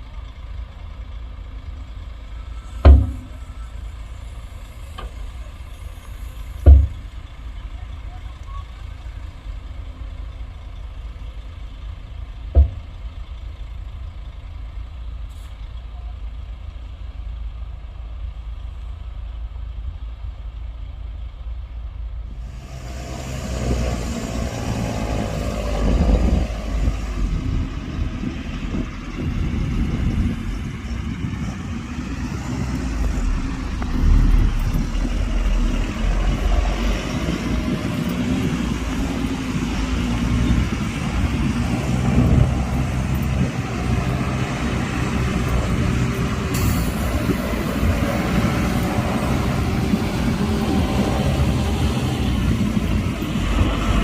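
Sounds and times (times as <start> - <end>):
diesel engine rumbling: 0.0 - 54.0
sharp knock: 2.8 - 3.4, 6.7 - 7.1.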